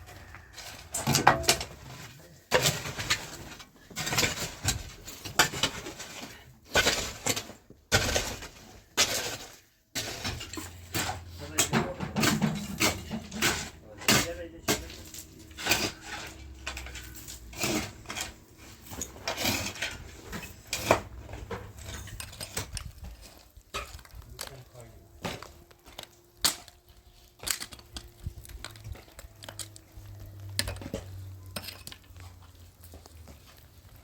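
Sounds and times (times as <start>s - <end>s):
hard objects clinking and knocking: 10.3s - 24.6s.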